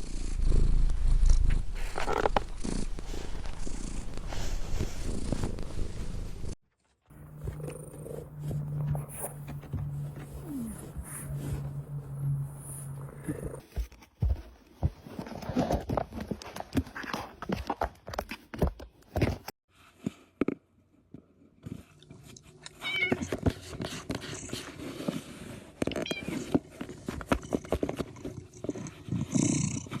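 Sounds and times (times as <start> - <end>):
cat meowing: 22.8 - 23.3.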